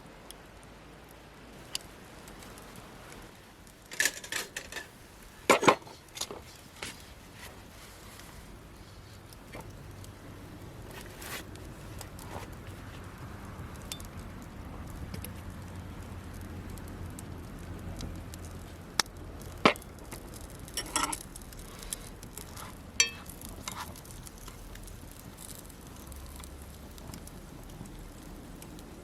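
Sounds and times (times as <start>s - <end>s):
faint campfire crackle: 0.0s - 29.0s
cookware and utensils clinking: 20.8s - 21.2s, 23.0s - 23.8s.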